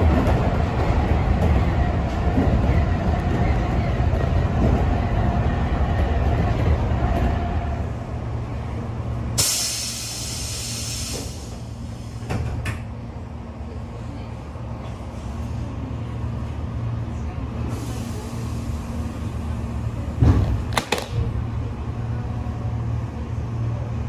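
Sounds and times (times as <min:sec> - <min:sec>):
train running rumble: 0:00.0 - 0:24.0
hiss of released air: 0:09.4 - 0:12.2.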